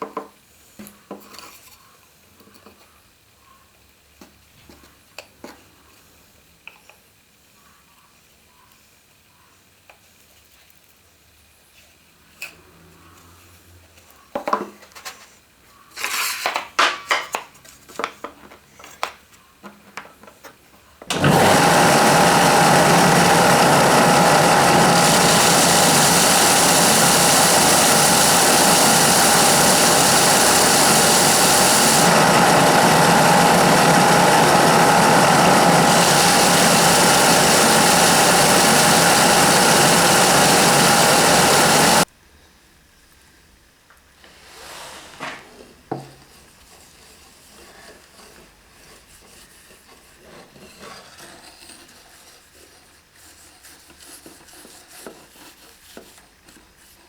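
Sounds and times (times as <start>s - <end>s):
power tool motor whining: 21.1s - 42.1s.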